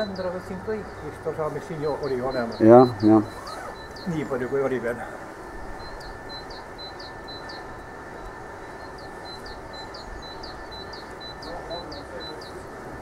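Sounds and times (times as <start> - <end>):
steady outdoor rumble: 0.0 - 13.0.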